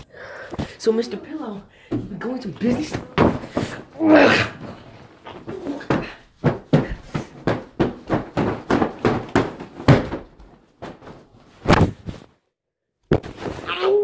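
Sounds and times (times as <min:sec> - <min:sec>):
dull thumps and knocks: 0:05.4 - 0:12.2.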